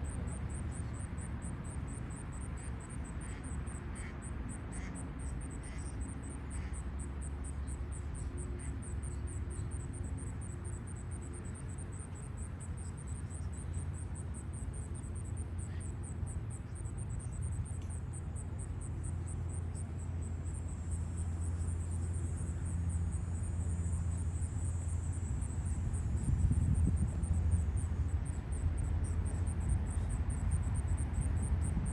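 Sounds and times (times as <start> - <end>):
insects chirping: 0.0 - 31.9
low steady rumble: 14.4 - 31.9.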